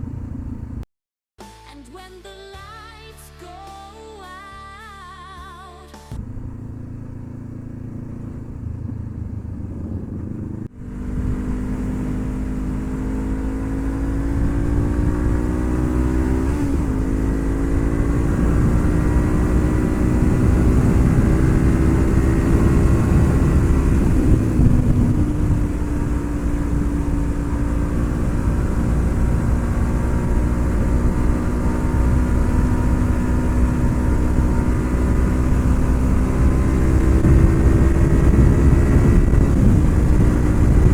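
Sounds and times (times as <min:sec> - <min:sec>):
motorcycle engine accelerating: 0:00.0 - 0:00.9, 0:06.1 - 0:40.9.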